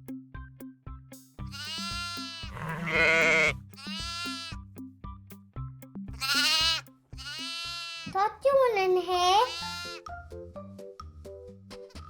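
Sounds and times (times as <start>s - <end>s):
background music with beat: 0.0s - 8.2s, 9.9s - 12.0s
sheep bleating: 1.5s - 4.6s, 6.2s - 8.2s, 9.4s - 10.0s.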